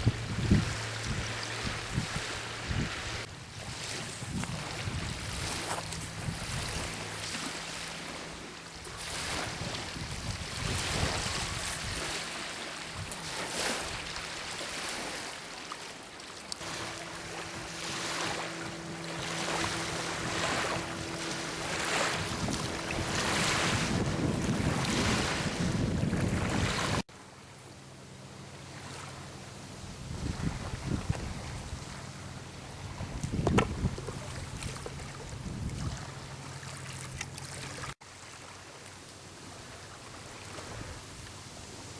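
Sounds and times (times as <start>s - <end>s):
wind buffeting microphone: 0.0s - 14.3s, 16.6s - 27.0s, 29.8s - 36.4s
small waves lapping at shore: 0.0s - 41.9s
low steady hum: 16.5s - 37.8s.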